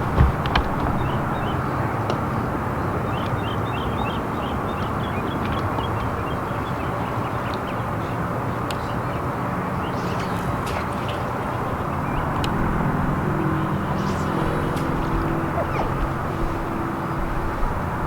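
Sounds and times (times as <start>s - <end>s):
wind noise: 0.0s - 7.2s, 11.4s - 18.0s
boat motor running: 0.0s - 7.3s, 11.2s - 18.0s
birds chirping: 0.0s - 18.0s.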